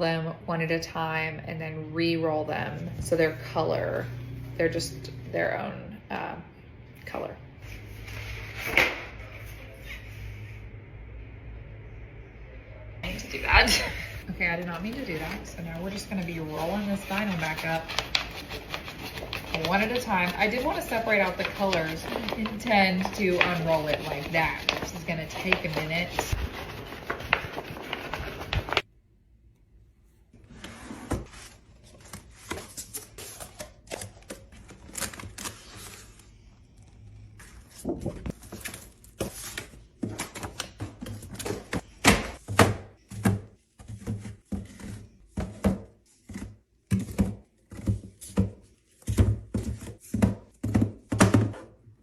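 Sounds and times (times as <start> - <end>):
vinyl sheet rustling: 13.0 - 28.9, 31.2 - 41.9.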